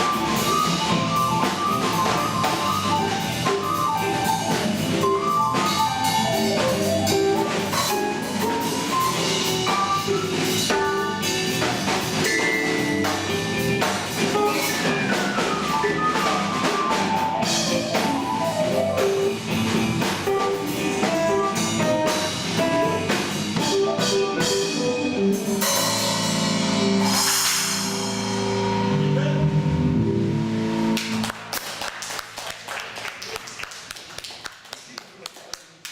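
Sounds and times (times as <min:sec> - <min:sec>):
drum beat: 0:00.0 - 0:26.2
guitar melody: 0:00.0 - 0:31.0
bass line: 0:00.0 - 0:31.3
cymbal wash: 0:25.8 - 0:29.1.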